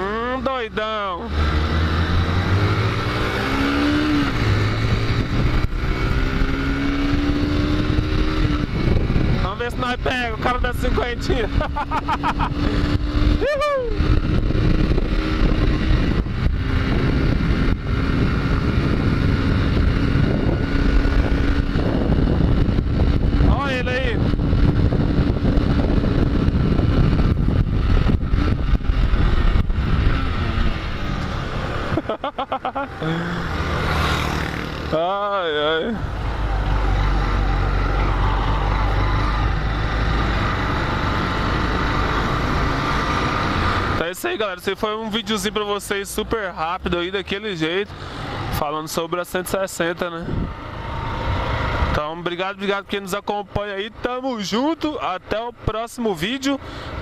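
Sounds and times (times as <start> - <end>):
motorcycle engine running: 0.0 - 44.1
wind rushing over microphone: 1.3 - 32.3, 49.9 - 52.3.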